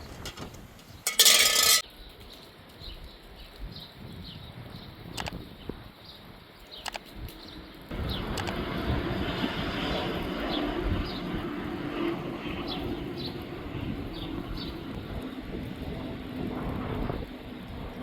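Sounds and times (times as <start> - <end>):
steady rumbling: 7.8 - 18.0.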